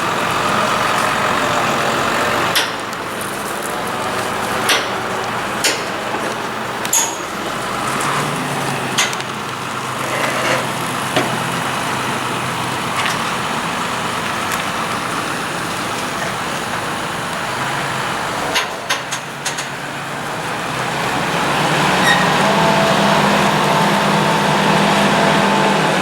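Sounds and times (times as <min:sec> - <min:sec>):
tractor engines working under load: 0:00.0 - 0:26.0
sharp metallic clanks: 0:06.8 - 0:07.3.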